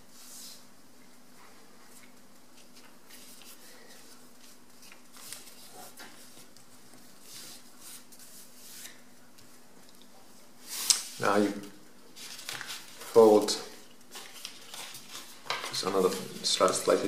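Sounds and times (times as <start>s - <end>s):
paper rustling and creasing: 1.9s - 9.1s, 12.1s - 17.0s.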